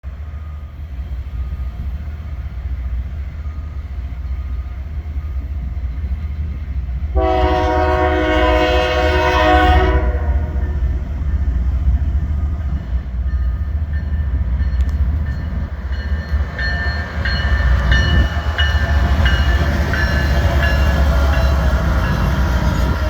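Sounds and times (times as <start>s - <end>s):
diesel freight train rumbling: 0.0s - 23.0s
train horn chord: 7.1s - 10.9s.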